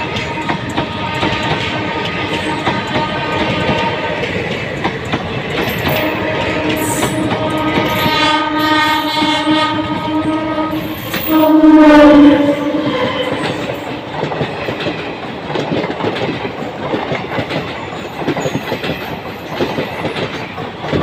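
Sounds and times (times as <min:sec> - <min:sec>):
train horn blast: 0:00.0 - 0:04.3, 0:05.9 - 0:14.0
train wheels clattering over rail joints: 0:00.0 - 0:08.3, 0:13.2 - 0:21.0.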